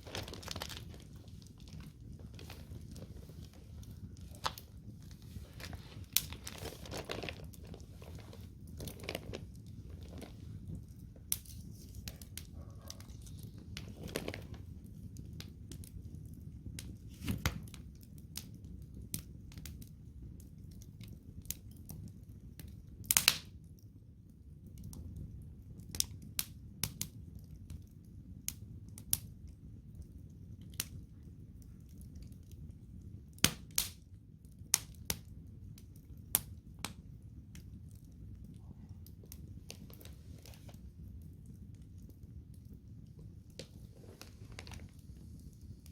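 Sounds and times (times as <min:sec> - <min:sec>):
sharp pops of fire: 0:00.0 - 0:07.7, 0:10.5 - 0:23.7, 0:33.3 - 0:38.0
low steady rumble: 0:00.0 - 0:23.0, 0:34.0 - 0:45.9
wood fire crackling: 0:00.0 - 0:45.9.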